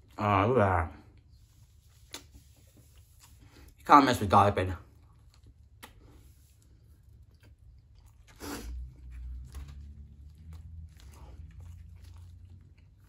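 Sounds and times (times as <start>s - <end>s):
chewing soft bread: 0.9s - 3.9s, 4.5s - 13.0s
wet mouth clicks and smacks: 5.3s - 6.1s.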